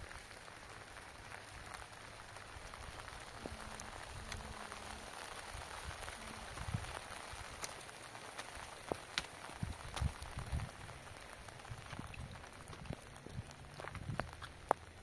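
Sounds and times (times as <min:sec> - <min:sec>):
raindrops ticking: 0:00.0 - 0:15.0
steady rain hiss: 0:00.0 - 0:15.0.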